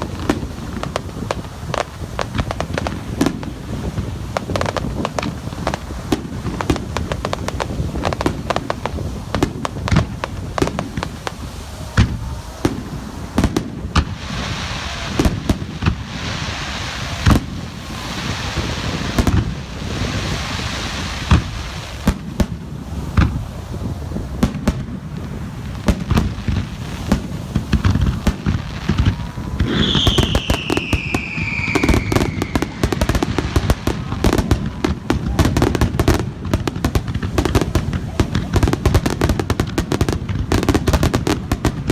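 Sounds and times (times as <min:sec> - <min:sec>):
hissing crackle of fireworks: 0:00.0 - 0:41.9
falling firework whistle: 0:11.7 - 0:22.2, 0:25.9 - 0:36.2
firework shell bursts: 0:25.9 - 0:33.8.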